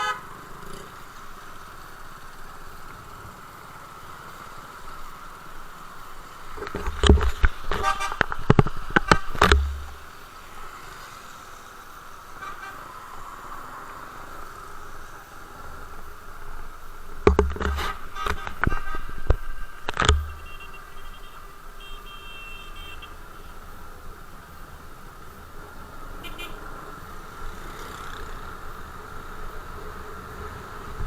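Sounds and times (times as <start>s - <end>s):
vehicle road noise: 0.0s - 31.0s
knocks and low rumbles: 6.7s - 10.0s, 17.2s - 20.5s.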